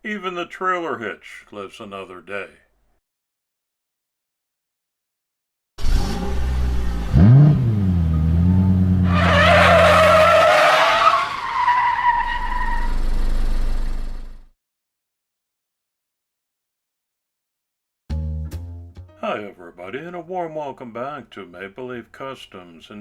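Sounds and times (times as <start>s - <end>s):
car engine revving: 5.8s - 11.0s
tyres squealing in a skid: 9.0s - 13.1s.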